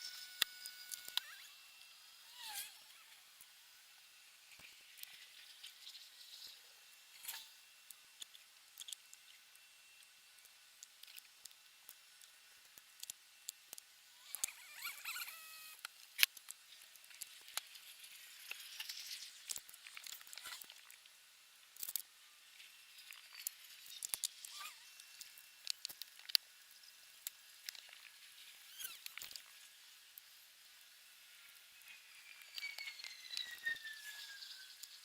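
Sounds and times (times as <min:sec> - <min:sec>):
small parts and tools clicking: 0:00.0 - 0:35.0
short squeak: 0:14.2 - 0:15.8, 0:28.7 - 0:29.2, 0:32.3 - 0:34.8.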